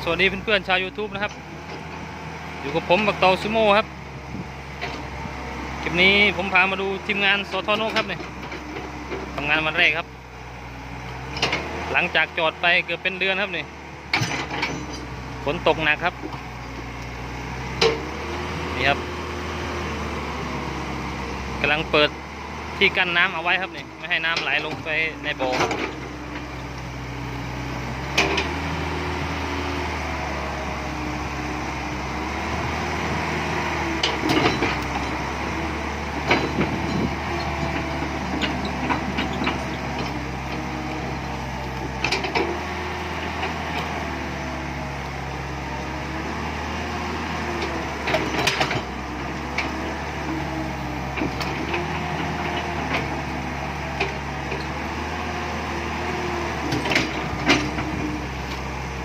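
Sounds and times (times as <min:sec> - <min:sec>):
excavator diesel engine: 0:00.0 - 0:59.0
metal knocking on earth and stone: 0:36.2 - 0:40.6.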